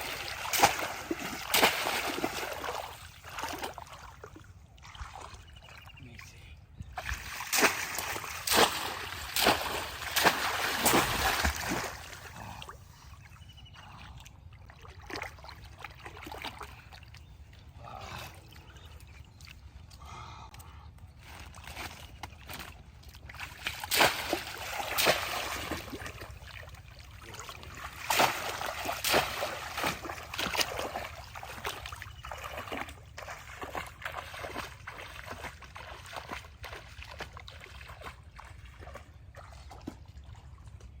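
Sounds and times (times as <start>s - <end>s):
loud sharp splashes: 0.0s - 4.0s, 7.0s - 12.3s, 23.4s - 26.7s, 27.3s - 38.0s
water splashing and sloshing: 0.0s - 41.0s.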